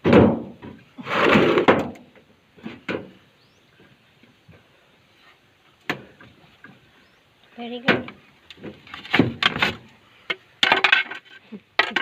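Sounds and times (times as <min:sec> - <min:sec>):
scraping slide: 0:01.0 - 0:01.7.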